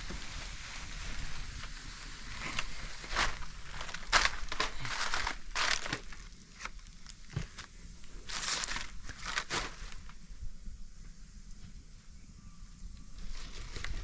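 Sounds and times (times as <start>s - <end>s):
crunching and rustling: 0.0s - 10.2s, 13.2s - 14.0s.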